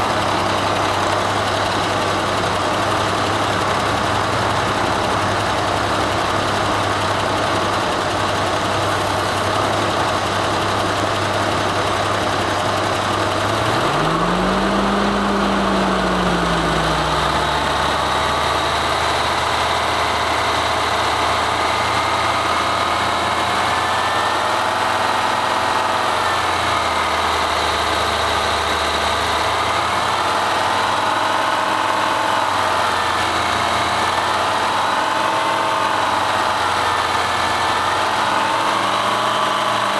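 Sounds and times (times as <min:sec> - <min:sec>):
big engine running: 0:00.0 - 0:31.6.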